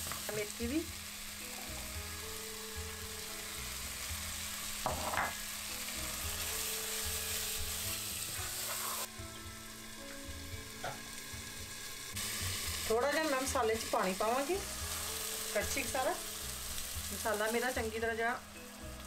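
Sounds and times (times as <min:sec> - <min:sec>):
masala sizzling in oil: 0:00.0 - 0:19.0
knock: 0:04.8 - 0:05.3
glass lid placed on pot: 0:04.8 - 0:05.4.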